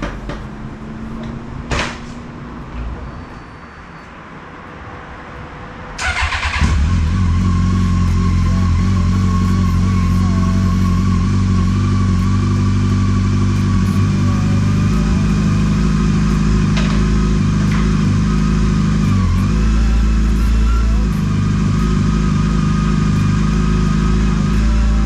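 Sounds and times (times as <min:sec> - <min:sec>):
motorcycle engine idling: 0:06.0 - 0:25.0.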